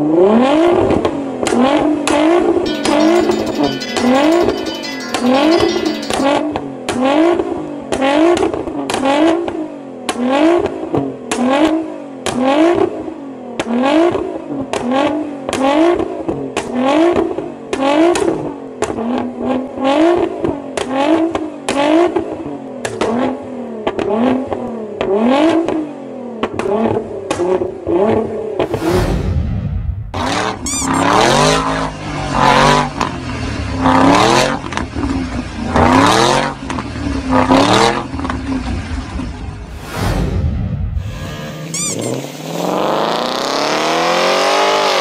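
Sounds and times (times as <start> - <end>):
low whoosh: 39.7 - 41.3
car engine revving: 41.6 - 45.0.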